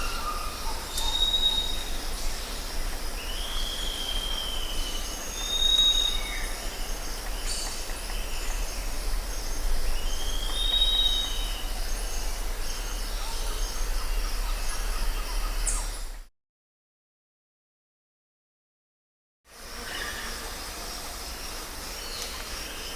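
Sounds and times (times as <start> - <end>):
steady low hum: 6.4 - 16.2.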